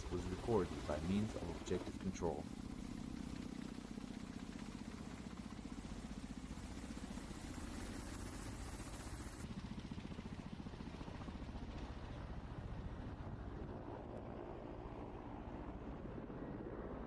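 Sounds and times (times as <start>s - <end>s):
helicopter rotors beating: 0.0s - 9.3s
helicopter engine noise: 0.0s - 17.0s.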